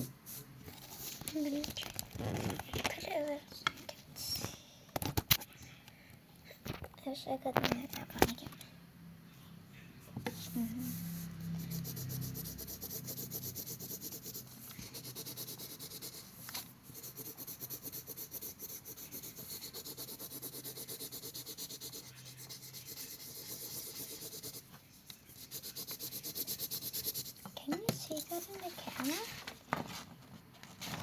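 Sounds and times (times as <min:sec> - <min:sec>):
colored pencil scratching on paper: 0:10.2 - 0:29.4.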